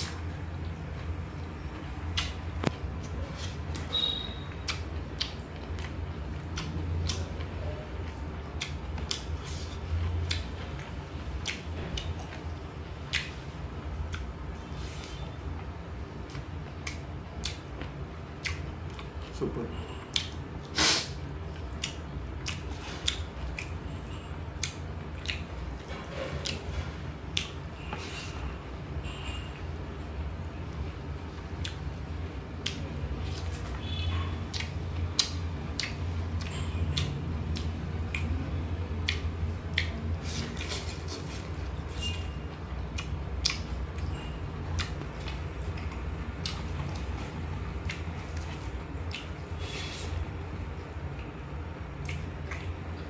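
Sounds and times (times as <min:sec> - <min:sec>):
steady low hum: 0:00.0 - 0:53.0
person chewing crisp food: 0:02.0 - 0:29.3, 0:31.5 - 0:53.0
wet lip-smacks and mouth clicks: 0:02.1 - 0:03.9, 0:04.6 - 0:07.5, 0:08.6 - 0:09.4, 0:10.2 - 0:10.6, 0:11.4 - 0:12.3, 0:13.1 - 0:13.4, 0:16.3 - 0:17.6, 0:18.4 - 0:19.1, 0:20.1 - 0:20.4, 0:21.6 - 0:23.8, 0:24.6 - 0:25.5, 0:27.3 - 0:27.6, 0:31.6 - 0:31.8, 0:32.6 - 0:33.8, 0:34.5 - 0:41.5, 0:42.9 - 0:44.1, 0:44.7 - 0:47.2, 0:47.8 - 0:49.8, 0:52.0 - 0:52.8.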